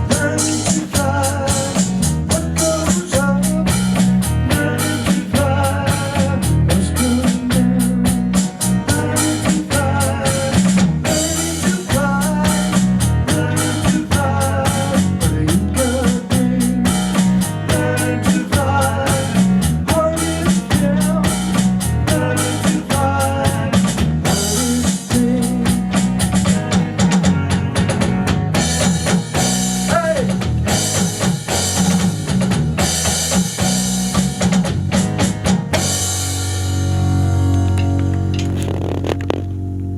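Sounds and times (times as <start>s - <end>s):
drum kit beat: 0.0s - 36.9s
band playing instrumental groove: 0.0s - 39.9s.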